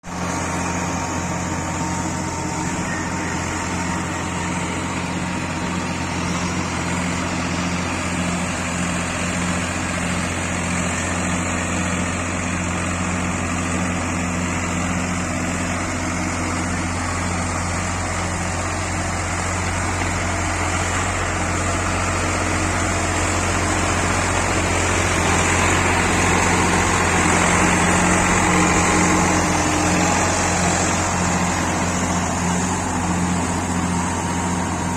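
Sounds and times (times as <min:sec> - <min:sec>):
tractor engine humming: 0:00.0 - 0:34.9.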